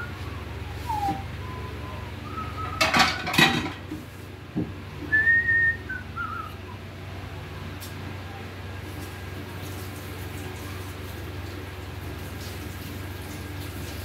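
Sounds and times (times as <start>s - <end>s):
person whistling a slow tune: 0.0s - 3.0s, 5.0s - 6.8s
electric fan humming: 0.0s - 14.0s
metal utensil clattering on pot: 2.7s - 3.9s.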